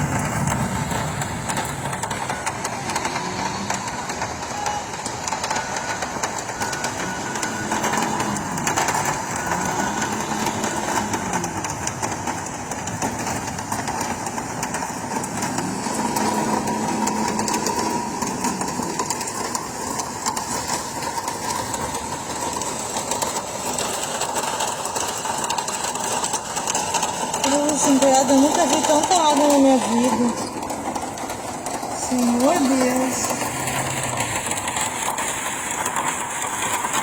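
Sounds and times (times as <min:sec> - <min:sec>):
vehicle engine running: 0:00.0 - 0:37.0.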